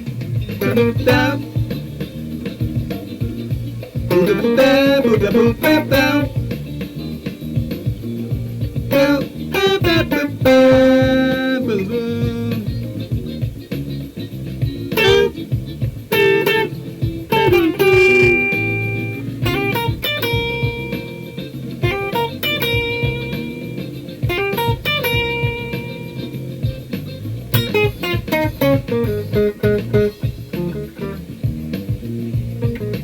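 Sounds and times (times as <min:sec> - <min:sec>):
band backing track with bass: 0:00.0 - 0:33.0
electric guitar lead line: 0:00.0 - 0:33.0.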